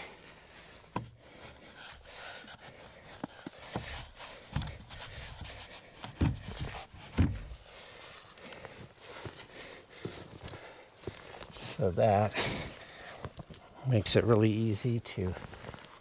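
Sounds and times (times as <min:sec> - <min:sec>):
wooden panels rubbing and scraping: 0:00.2 - 0:09.4
knocks and thumps on wood: 0:03.7 - 0:07.6.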